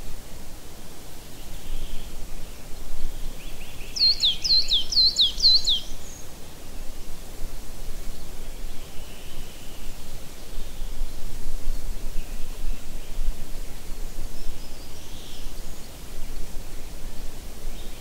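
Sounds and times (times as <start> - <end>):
faint bird chirps: 1.4 - 7.0, 8.1 - 13.3.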